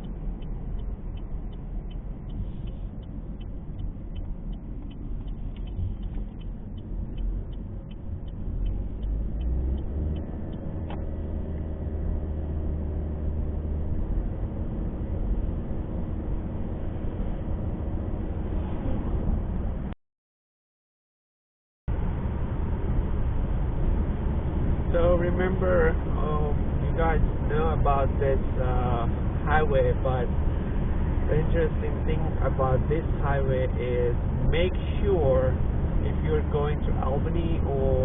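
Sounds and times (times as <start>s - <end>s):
turn signal ticking: 0.0s - 12.6s
car engine and road rumble: 0.0s - 20.0s, 21.9s - 38.0s.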